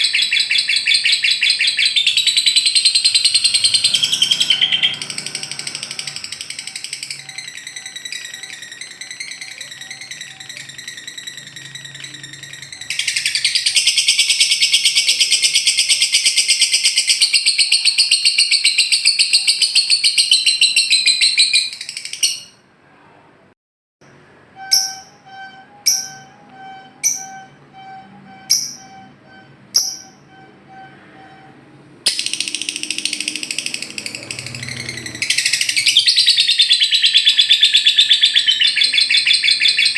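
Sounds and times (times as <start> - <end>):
songbird chattering trill: 0.0 - 22.4, 32.1 - 39.9
sharp bird chirps: 0.0 - 22.6, 24.6 - 31.4, 32.1 - 39.9.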